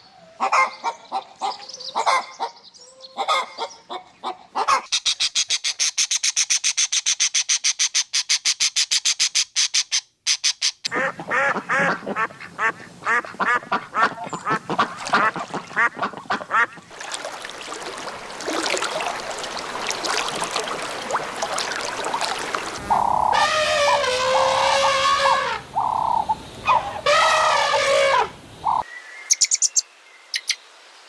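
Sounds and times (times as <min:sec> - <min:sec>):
ducks quacking: 0:10.9 - 0:16.9, 0:20.3 - 0:28.8
drawn-out pitched call: 0:21.5 - 0:28.8.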